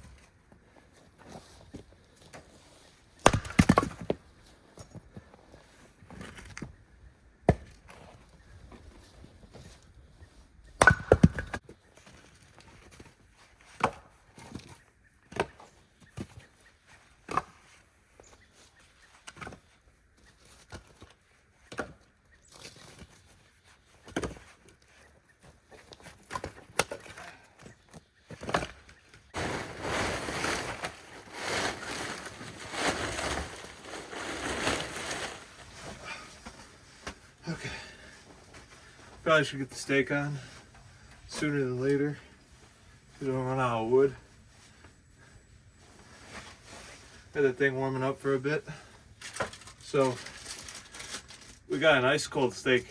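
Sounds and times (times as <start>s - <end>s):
wood being chopped: 3.2s - 4.2s, 7.4s - 7.8s, 10.8s - 11.7s
rough rustling noise: 29.2s - 48.4s, 49.2s - 52.9s.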